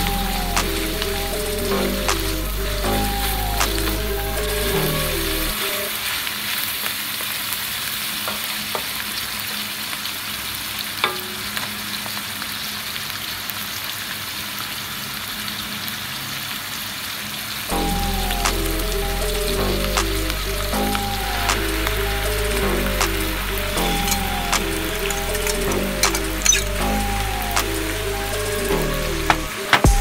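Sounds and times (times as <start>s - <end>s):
background music: 0.0s - 6.0s, 17.7s - 30.0s
food sizzling in oil: 0.0s - 29.9s.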